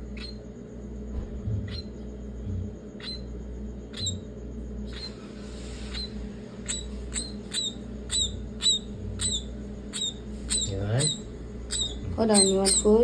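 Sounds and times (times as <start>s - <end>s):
myna bird squeaky calls: 0.1s - 0.4s, 3.0s - 3.2s, 3.9s - 4.3s, 4.9s - 5.2s, 5.8s - 13.0s.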